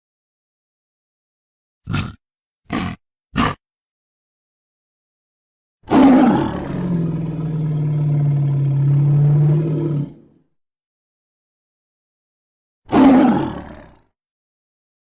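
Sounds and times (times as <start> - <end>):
gorilla roar: 1.9 - 3.6, 5.9 - 10.4, 12.9 - 14.1.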